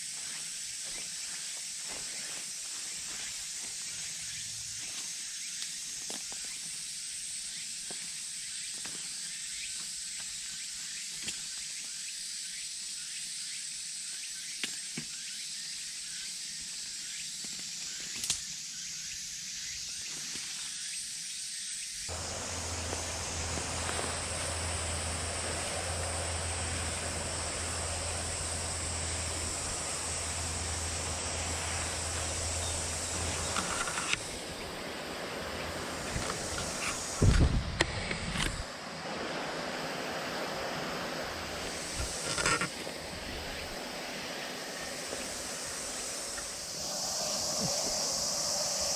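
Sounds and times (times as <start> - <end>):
high-pitched insect drone: 20.8 - 48.9
rushing noise: 22.1 - 42.3
steady low hum: 22.1 - 48.9.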